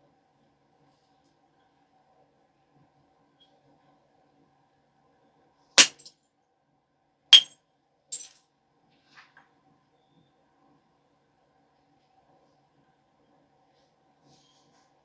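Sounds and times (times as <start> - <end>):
stone knapping clicks: 5.8 - 6.1.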